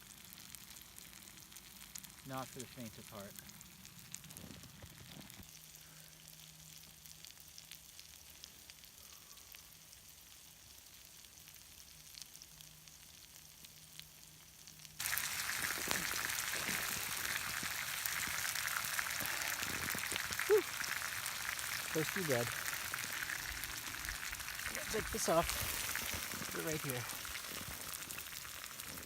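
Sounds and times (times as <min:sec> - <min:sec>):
campfire coals crackling and hissing: 0:00.0 - 0:29.0
small pops: 0:15.0 - 0:29.0.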